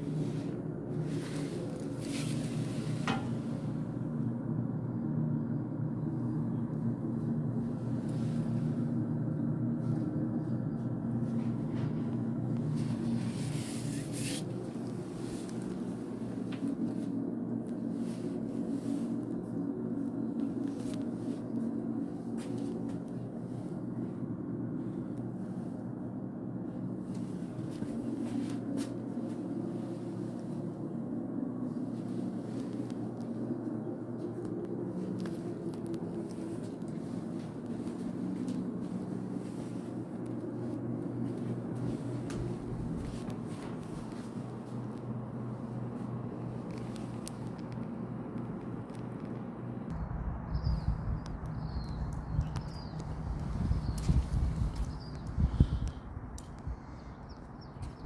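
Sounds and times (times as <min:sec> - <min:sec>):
gas water heater humming: 0:00.0 - 0:19.3, 0:31.6 - 0:48.8.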